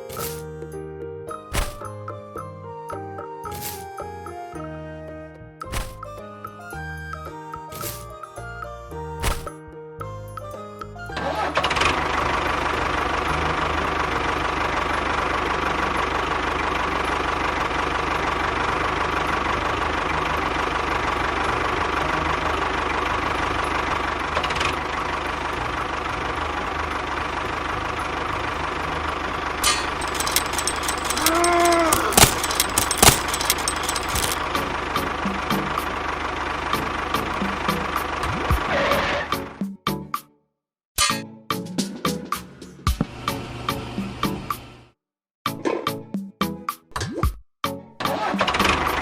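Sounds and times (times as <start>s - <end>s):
engine idling: 11.8s - 38.5s.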